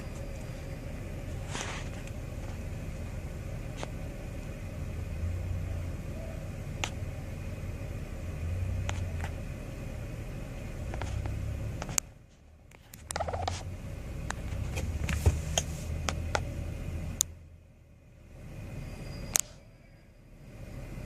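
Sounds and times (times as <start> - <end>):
vehicle engine rumbling: 0.0 - 21.0
faint sharp clicks: 19.3 - 19.6.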